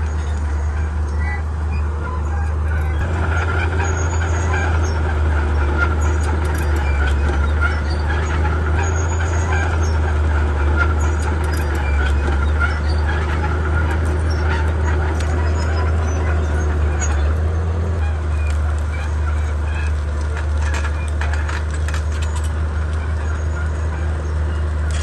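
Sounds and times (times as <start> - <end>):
bulldozer diesel engine humming: 0.0 - 25.0
short clicks and clanks: 19.8 - 23.8.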